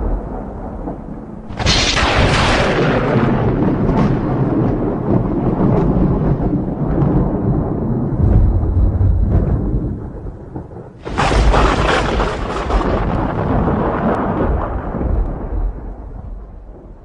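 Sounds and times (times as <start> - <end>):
sharp thunderclap: 0.0 - 17.0
thunder rumbling: 0.0 - 17.0.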